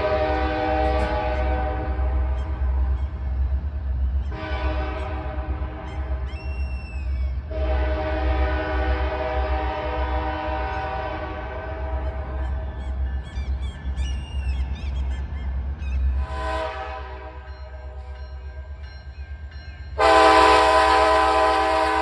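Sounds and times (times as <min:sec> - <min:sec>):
locomotive air horn blasts: 0:00.0 - 0:02.4, 0:04.3 - 0:06.2, 0:07.5 - 0:12.3, 0:16.2 - 0:17.5, 0:20.0 - 0:22.0
locomotive engine rumble: 0:00.0 - 0:22.0
bird call: 0:05.8 - 0:07.4.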